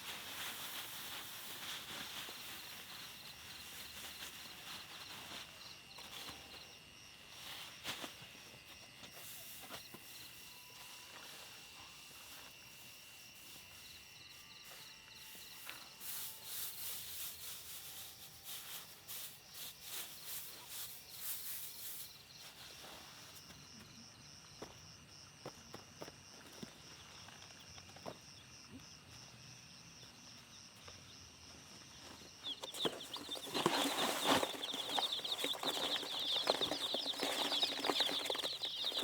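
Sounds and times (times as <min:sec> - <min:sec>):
rustling crackles: 0:00.0 - 0:06.6, 0:32.4 - 0:39.0
insects chirping in high trills: 0:00.0 - 0:39.0.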